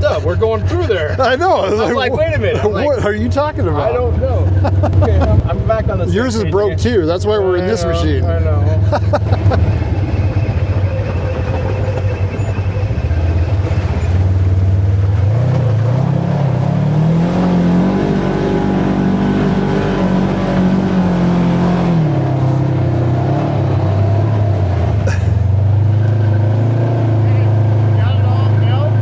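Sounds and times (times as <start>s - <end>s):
utility vehicle engine revving: 0.0s - 29.0s.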